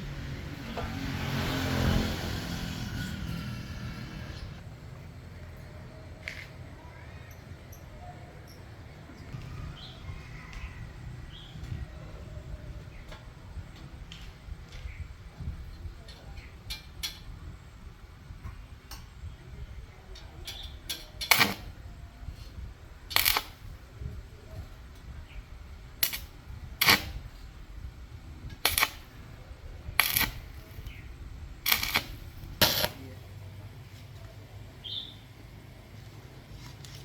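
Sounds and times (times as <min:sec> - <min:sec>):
low steady rumble: 0:00.0 - 0:00.8.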